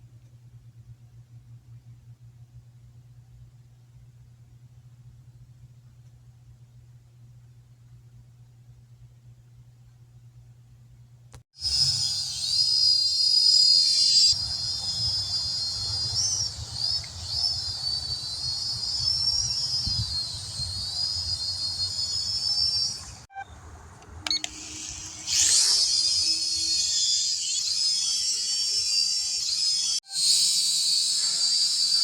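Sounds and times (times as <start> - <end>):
toy quadcopter motors whining: 11.6 - 23.3, 24.3 - 32.0.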